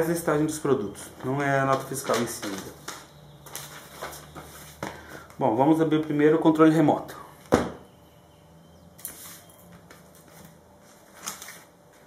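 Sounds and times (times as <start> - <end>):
packaging rustling: 1.1 - 5.2, 9.0 - 12.0.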